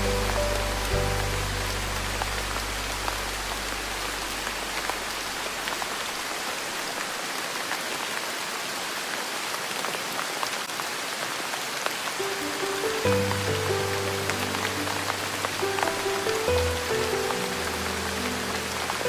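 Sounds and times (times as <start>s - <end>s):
soft background music: 0.0s - 4.2s, 12.2s - 19.0s
steady rain falling: 0.0s - 19.0s.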